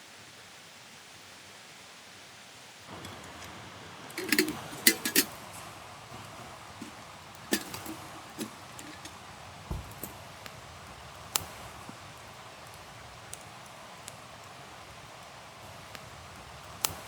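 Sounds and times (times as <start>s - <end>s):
steady low hiss: 0.0s - 17.0s
sharp clicks and knocks: 2.9s - 10.6s
dull thump: 8.1s - 10.2s.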